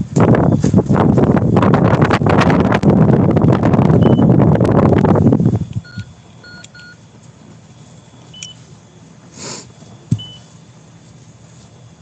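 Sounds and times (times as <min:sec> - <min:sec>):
keypad beeps: 0:04.0 - 0:04.3, 0:05.8 - 0:07.0, 0:08.0 - 0:08.6, 0:10.1 - 0:10.5
brief hiss: 0:09.3 - 0:09.8
soft thump: 0:10.1 - 0:10.3.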